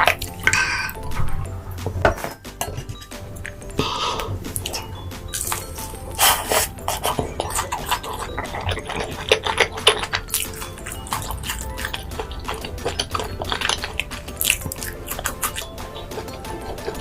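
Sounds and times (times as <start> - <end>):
food being chewed and crunched: 0.0 - 1.5, 2.6 - 17.0
cutlery clinking against dishes: 0.0 - 17.0.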